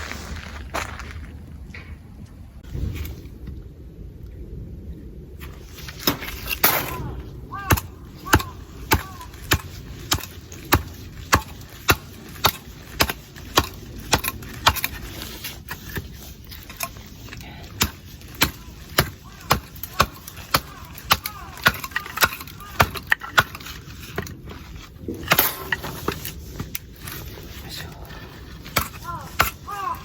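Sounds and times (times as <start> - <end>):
sharp cracking strikes: 6.0 - 14.9.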